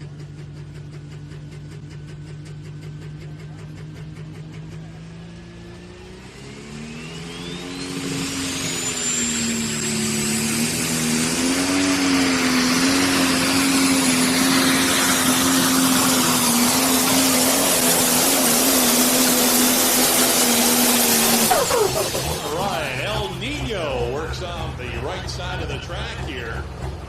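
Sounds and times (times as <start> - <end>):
tractor engine running flat out: 0.0 - 27.0
high turbo whistle: 6.8 - 12.6.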